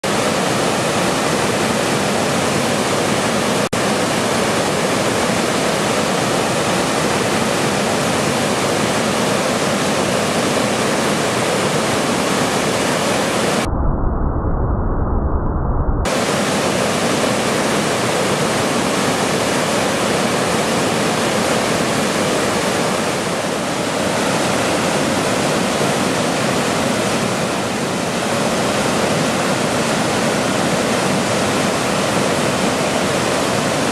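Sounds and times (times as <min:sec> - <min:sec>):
waterfall rushing: 0:00.0 - 0:13.7, 0:16.1 - 0:33.9
deep low rumble: 0:13.6 - 0:16.1.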